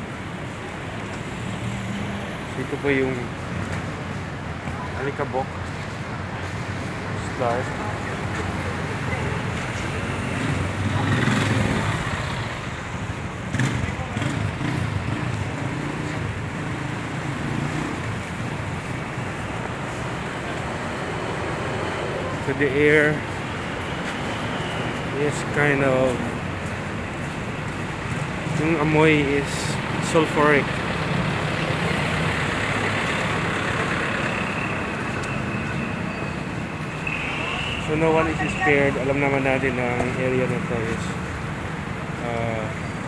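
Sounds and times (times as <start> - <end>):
road noise: 0.0 - 43.0
vehicle engines humming: 0.0 - 43.0.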